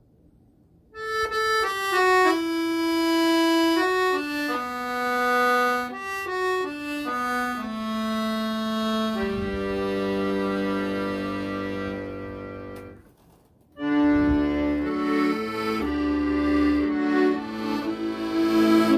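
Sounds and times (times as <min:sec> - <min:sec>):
accordion slow melody: 0:00.9 - 0:13.0, 0:13.8 - 0:18.9
low sustained backing notes: 0:14.0 - 0:18.9.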